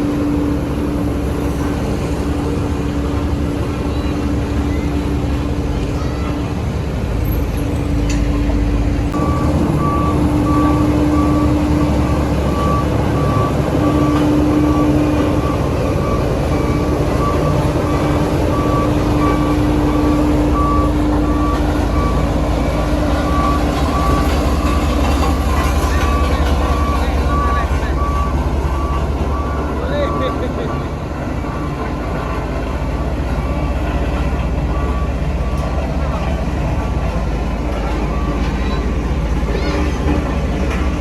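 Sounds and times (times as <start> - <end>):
diesel construction machine running: 0.0 - 41.0
reversing alarm beeping: 9.2 - 32.4, 33.2 - 36.9, 37.5 - 39.8.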